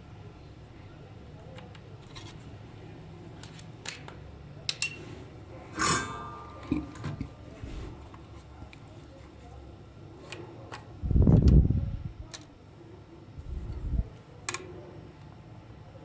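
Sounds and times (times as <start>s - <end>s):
low steady hum: 0.0s - 16.0s
sharp clicks of metal parts: 3.4s - 5.0s, 5.7s - 7.3s
metallic clink: 5.8s - 7.0s.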